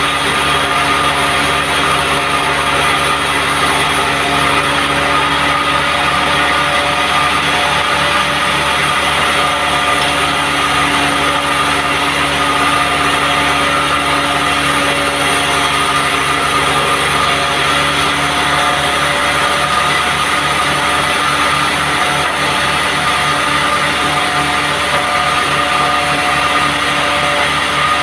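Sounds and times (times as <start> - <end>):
sawmill machine drone: 0.0 - 28.0.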